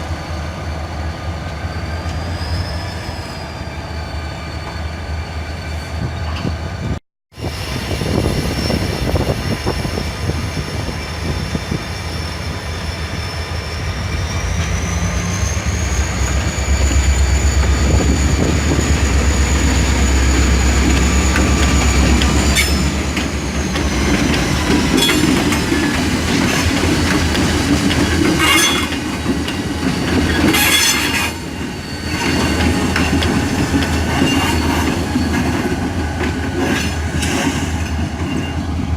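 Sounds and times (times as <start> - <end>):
freight train rolling by: 0.0 - 38.9
train wheels squealing: 0.0 - 38.9
clanks and rail-joint clacks: 20.3 - 38.8.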